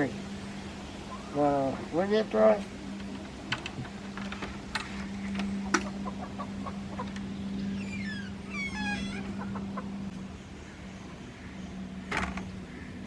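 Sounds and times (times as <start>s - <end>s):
hens clucking: 0.0s - 2.1s, 2.9s - 10.2s
low hum: 0.0s - 13.0s.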